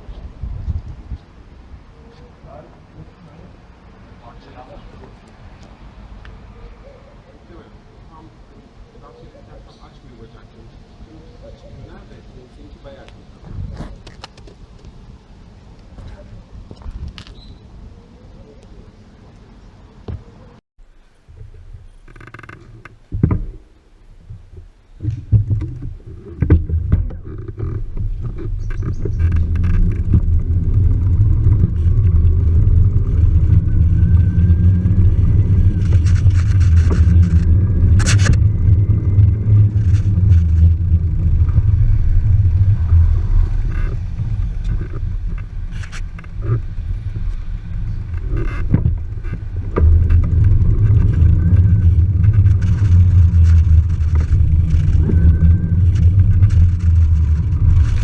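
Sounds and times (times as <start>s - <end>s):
mountain bike riding rumble: 21.4s - 58.0s.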